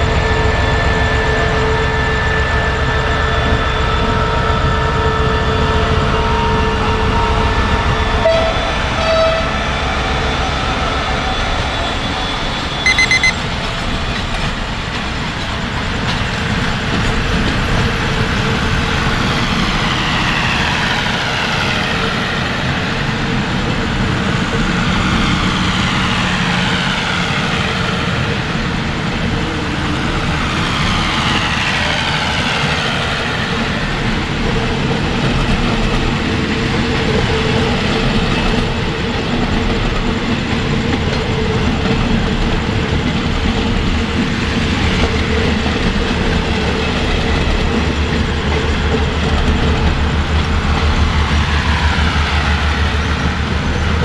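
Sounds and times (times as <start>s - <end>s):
diesel train engine running: 0.0s - 54.0s
brief beeping: 12.8s - 13.4s.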